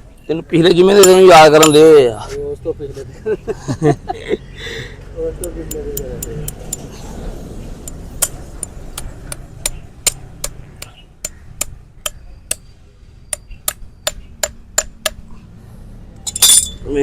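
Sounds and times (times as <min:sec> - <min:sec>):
hoof-trimming tool taps: 0:05.4 - 0:06.9.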